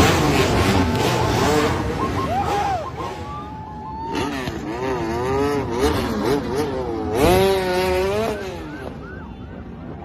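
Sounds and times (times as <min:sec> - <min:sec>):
motorcycle engines revving: 0:00.0 - 0:10.0.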